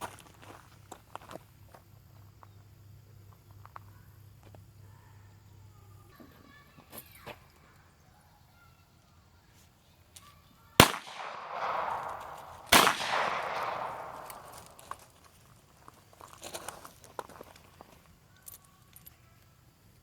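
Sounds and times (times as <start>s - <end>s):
loud echoing bangs: 10.8s - 15.0s.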